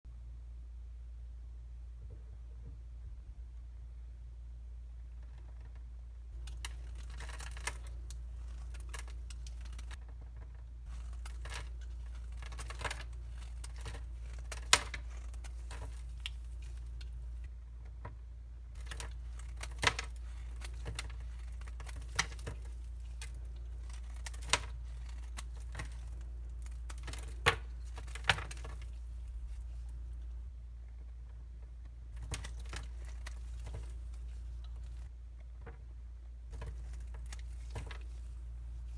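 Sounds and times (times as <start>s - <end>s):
dry soap crunching: 6.4s - 10.0s, 10.9s - 17.5s, 18.8s - 30.5s, 32.2s - 35.1s, 36.5s - 38.9s.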